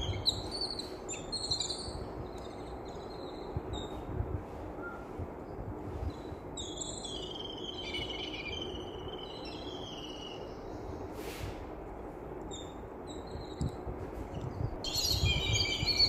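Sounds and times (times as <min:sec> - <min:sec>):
birds chirping: 0:00.0 - 0:04.1, 0:04.8 - 0:11.1, 0:14.4 - 0:16.0
low background hum: 0:00.0 - 0:16.0
burst of hiss: 0:11.1 - 0:11.7.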